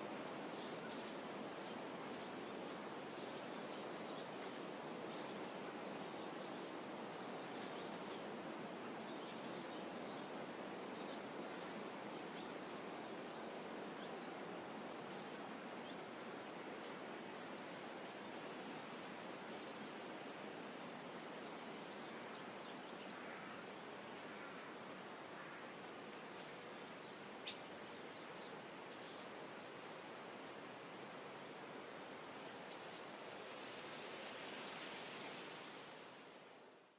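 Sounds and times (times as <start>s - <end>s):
gently rippling water: 23.0s - 36.9s.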